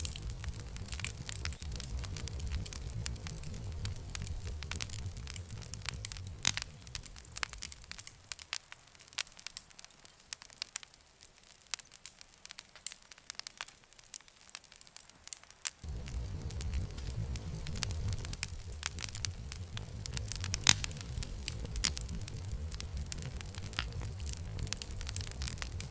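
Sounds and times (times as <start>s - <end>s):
low rumble: 0.0s - 8.4s, 15.8s - 25.9s
wood fire crackling and popping: 0.0s - 25.9s.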